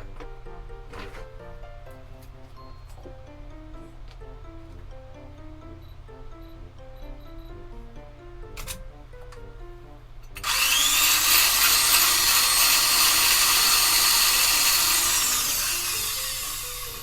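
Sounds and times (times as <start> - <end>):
soft background music: 0.0 - 17.0
handheld power tool whining: 10.3 - 17.0.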